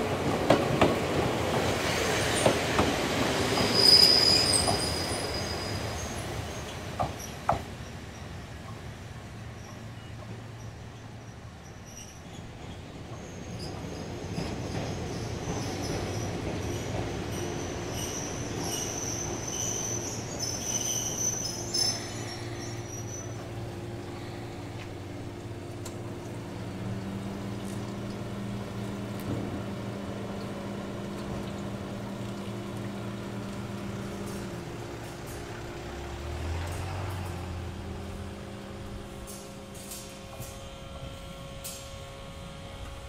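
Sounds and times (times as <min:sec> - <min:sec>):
train wheel squeal: 0:01.9 - 0:08.8, 0:09.4 - 0:23.6.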